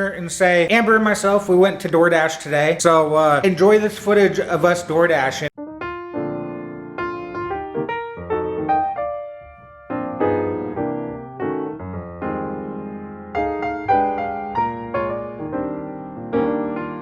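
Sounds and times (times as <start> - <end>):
piano music: 4.3 - 17.0.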